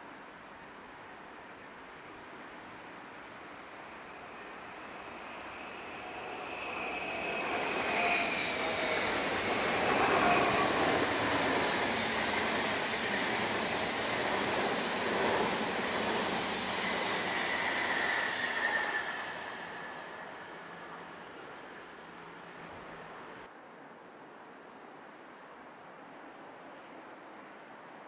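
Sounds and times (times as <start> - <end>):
train passing on track: 2.0 - 23.5
squealing wheels whine: 4.0 - 23.5.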